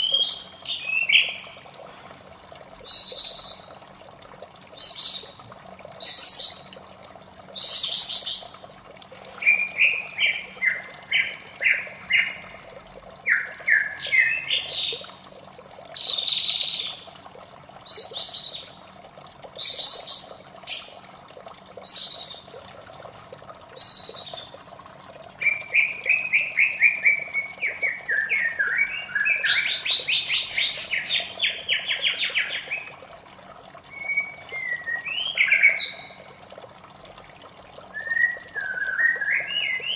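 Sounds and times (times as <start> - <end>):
bird singing whistles and trills: 0.0 - 1.4, 2.8 - 3.8, 4.8 - 5.4, 6.0 - 6.7, 9.4 - 12.4, 13.3 - 15.0, 16.0 - 17.0, 17.9 - 18.7, 21.8 - 22.6, 23.8 - 24.6, 25.4 - 32.9, 33.9 - 36.2, 37.9 - 39.9
trickle of running water: 0.0 - 39.9.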